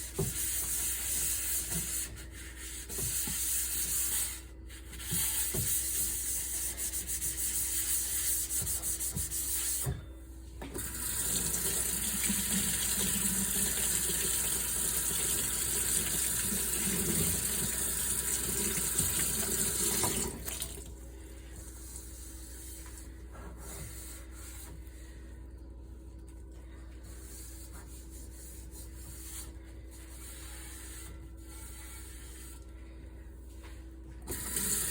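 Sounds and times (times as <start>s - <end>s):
tap water running into sink: 10.8s - 20.9s, 34.3s - 34.9s.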